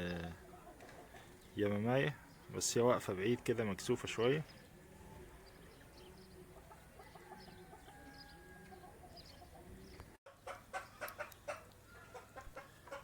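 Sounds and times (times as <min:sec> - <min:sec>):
chickens clucking: 0:00.0 - 0:02.1, 0:05.7 - 0:13.0.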